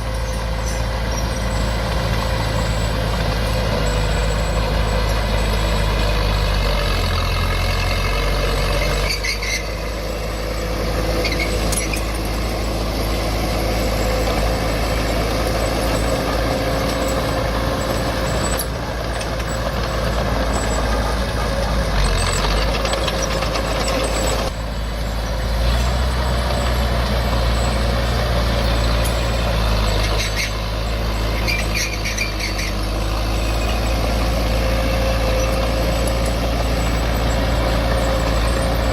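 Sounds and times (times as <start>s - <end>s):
heavy diesel engines running: 0.0s - 38.9s
short high squeaks: 8.6s - 10.2s, 11.0s - 12.8s, 28.7s - 38.9s.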